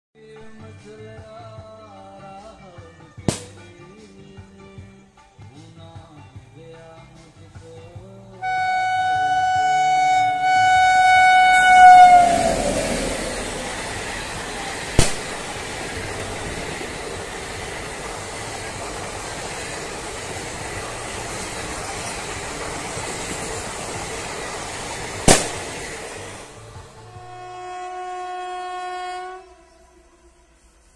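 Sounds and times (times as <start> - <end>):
train horn: 8.4 - 15.1, 26.5 - 30.9
train coaches rolling by: 8.4 - 30.9
sharp clacks: 14.9 - 19.6.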